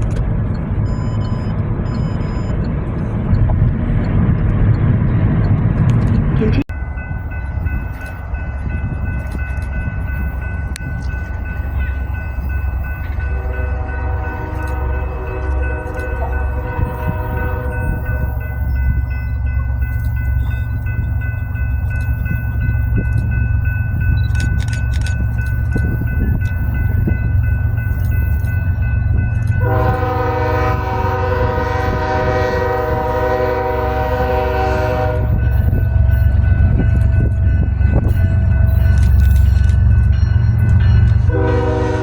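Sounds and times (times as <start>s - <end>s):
train rumbling past: 0.0s - 42.0s
locomotive air horn: 13.3s - 18.4s, 29.6s - 35.4s, 41.3s - 42.0s.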